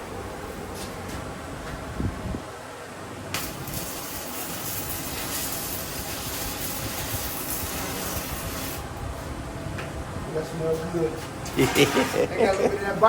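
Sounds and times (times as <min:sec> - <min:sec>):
electric arc welding hiss: 0:03.3 - 0:09.0, 0:11.5 - 0:12.3.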